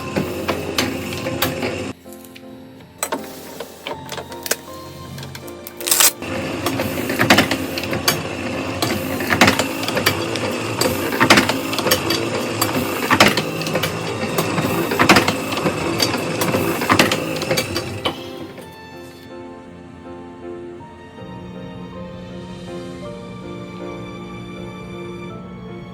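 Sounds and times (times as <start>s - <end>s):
printing press clattering: 0.0s - 2.0s, 3.0s - 18.8s.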